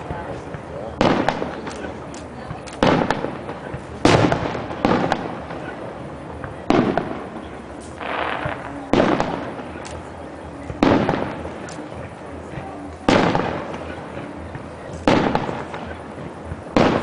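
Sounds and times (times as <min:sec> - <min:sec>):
fireworks bangs: 0:00.0 - 0:17.0
fireworks hiss: 0:02.8 - 0:10.1.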